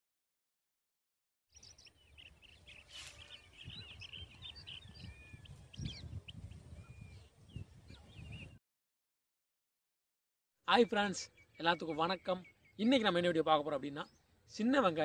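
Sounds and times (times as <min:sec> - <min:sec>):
birds chirping: 0:01.5 - 0:08.6, 0:10.7 - 0:15.0
low gusting rumble: 0:03.7 - 0:08.6.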